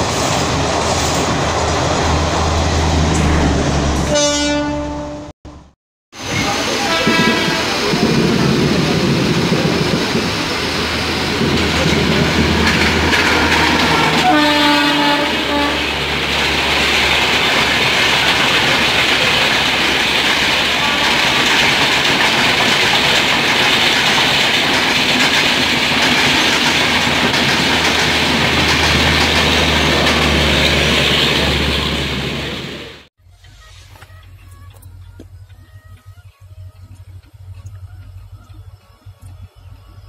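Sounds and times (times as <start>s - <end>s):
train horn: 4.0s - 5.3s, 6.6s - 8.0s, 13.8s - 16.1s
train wheels clattering on rails: 6.2s - 32.8s.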